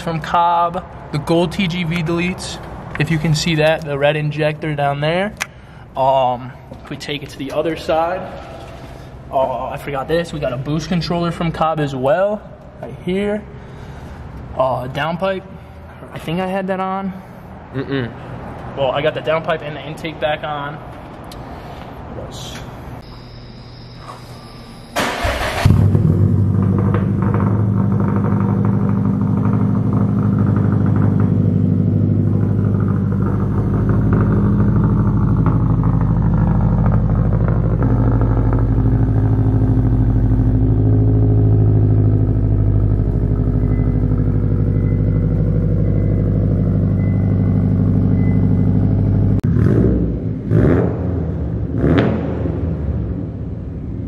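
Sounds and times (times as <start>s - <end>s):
car engine starting and idling: 0.0s - 12.0s, 23.2s - 54.0s.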